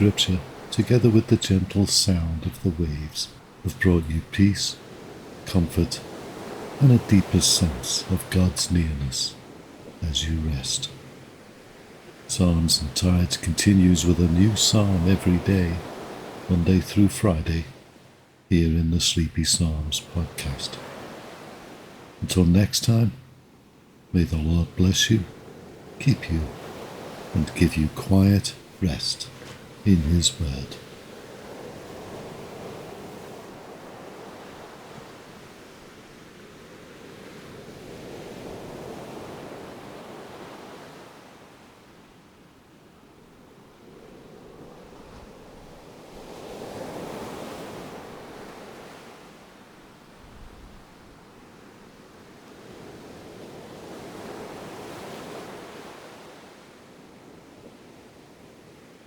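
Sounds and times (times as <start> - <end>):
ocean waves washing on shore: 0.0 - 59.0.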